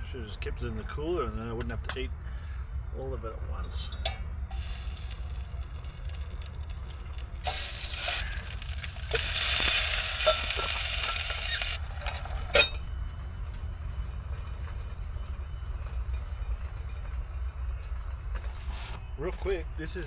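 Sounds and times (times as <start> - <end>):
steady low rumble: 0.0 - 20.0
sharp clink: 3.9 - 4.3, 12.6 - 12.9
food sizzling in a pot: 4.5 - 11.8.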